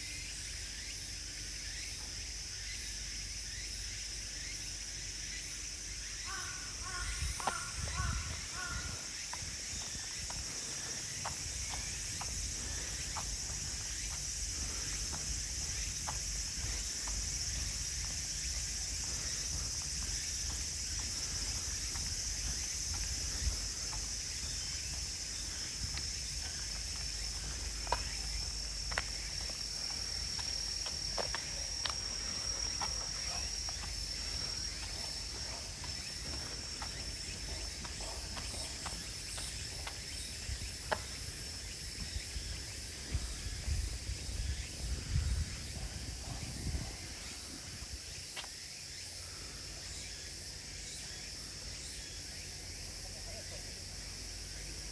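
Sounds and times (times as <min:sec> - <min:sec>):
insects chirring: 0:00.0 - 0:54.9
footsteps on path: 0:06.3 - 0:48.7.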